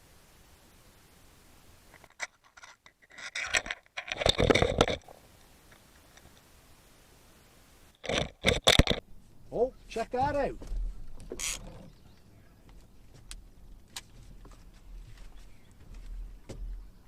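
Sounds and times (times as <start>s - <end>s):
scraping handling noises: 1.9s - 6.5s.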